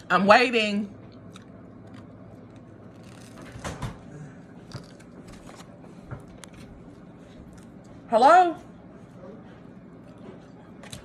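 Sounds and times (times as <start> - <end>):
small eating clicks: 1.0 - 3.8.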